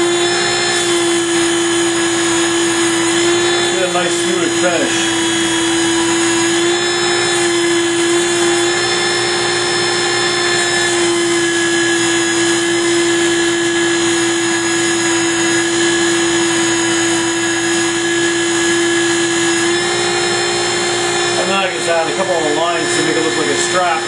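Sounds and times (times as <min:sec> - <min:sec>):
electric power tool whine: 0:00.0 - 0:24.0
sanding wood: 0:02.2 - 0:10.9.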